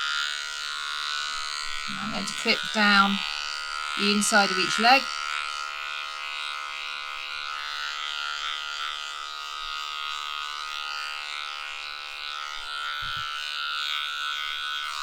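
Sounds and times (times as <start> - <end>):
electric clippers buzzing: 0.0 - 15.0.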